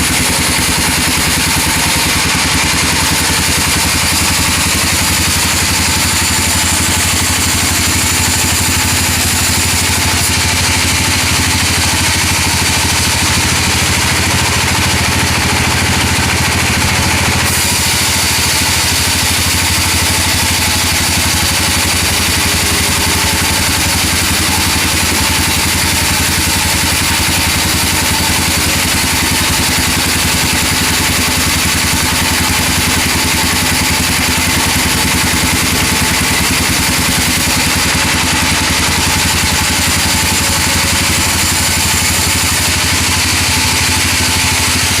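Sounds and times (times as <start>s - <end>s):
band saw running: 0.0s - 45.0s.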